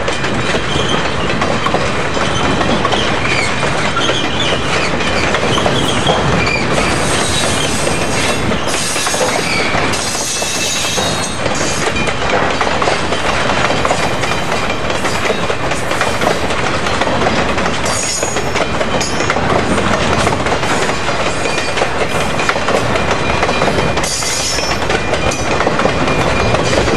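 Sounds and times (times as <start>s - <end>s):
train wheels clattering over joints: 0.0s - 26.9s
high metallic squeals: 3.3s - 11.8s.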